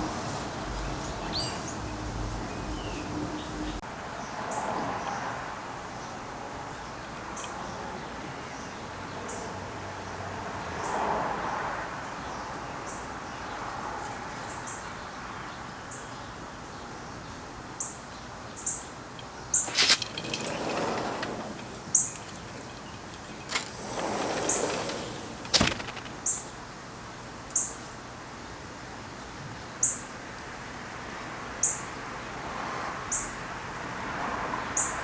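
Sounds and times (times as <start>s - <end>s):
small birds chirping: 0.5s - 3.8s.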